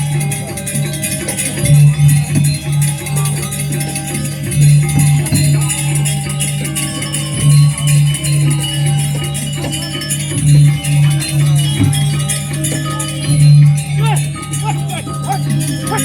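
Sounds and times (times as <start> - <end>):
gamelan music: 0.0 - 16.0
jingling cymbals: 0.0 - 16.0.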